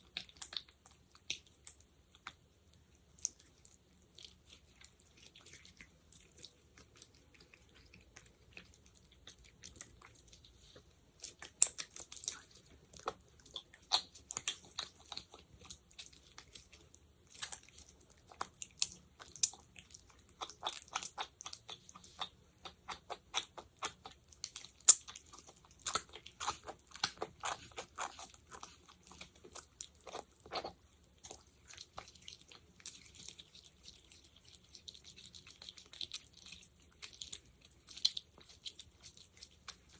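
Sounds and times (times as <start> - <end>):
sticky wet crackling and clicking: 0.0 - 39.9
jelly snapping: 11.2 - 39.9.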